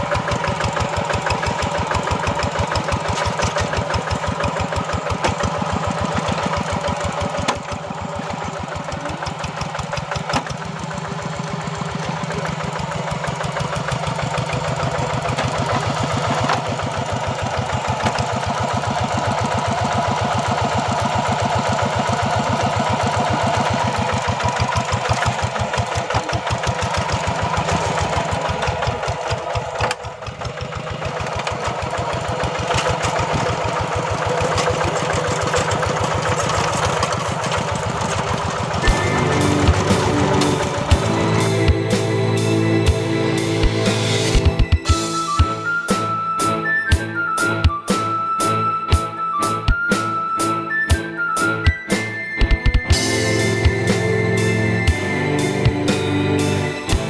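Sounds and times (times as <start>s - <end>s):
tractor engine under load: 0.0s - 47.0s, 52.0s - 57.0s.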